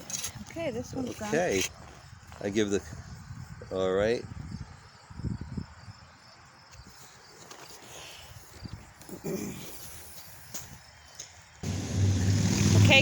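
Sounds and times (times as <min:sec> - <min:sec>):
engine drone: 0:11.6 - 0:13.0.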